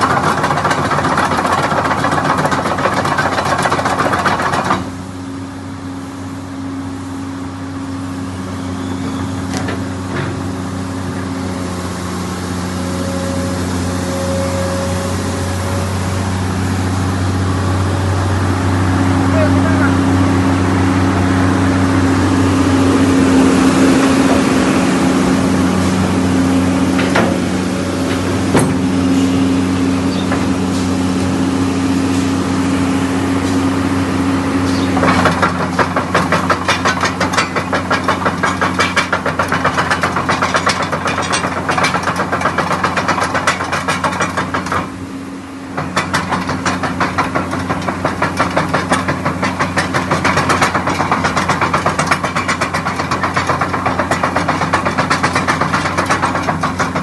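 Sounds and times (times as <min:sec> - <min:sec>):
fast regular knocking clatter: 0:00.0 - 0:04.9, 0:34.9 - 0:45.0, 0:45.7 - 0:57.0
excavator diesel engine running: 0:00.0 - 0:57.0.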